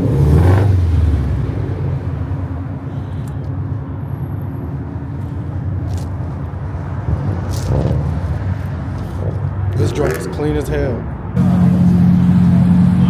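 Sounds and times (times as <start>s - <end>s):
car engine idling: 0.0s - 6.9s, 11.4s - 13.0s.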